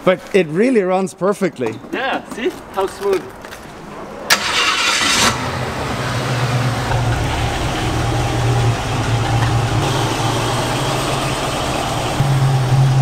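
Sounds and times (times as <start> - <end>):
car engine idling: 4.3 - 13.0.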